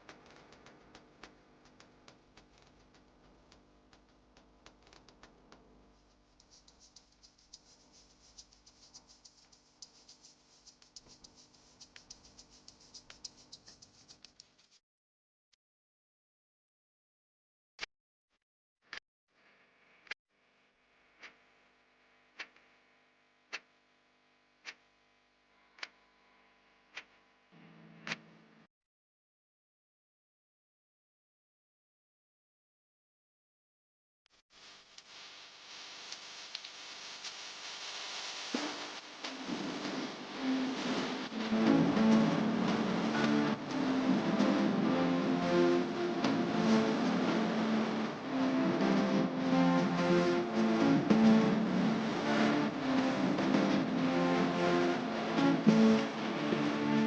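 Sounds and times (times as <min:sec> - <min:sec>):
low steady hiss: 0:01.9 - 0:14.3, 0:34.5 - 0:57.0
small tools clicking and scratching: 0:06.1 - 0:14.8.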